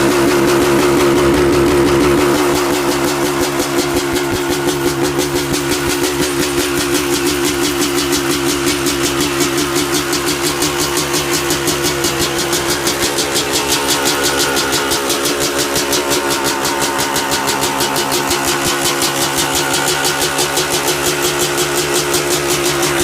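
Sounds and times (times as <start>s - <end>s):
two-stroke engine idling: 0.0s - 23.0s.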